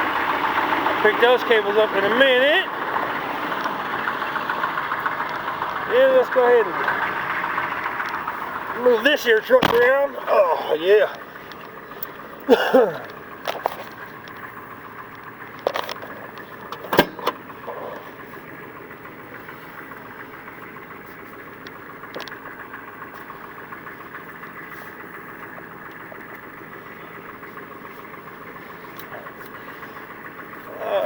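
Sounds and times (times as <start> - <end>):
diesel engine running: 0.0 - 31.0
sharp clicks and knocks: 9.5 - 10.0, 13.0 - 17.4, 21.6 - 22.4.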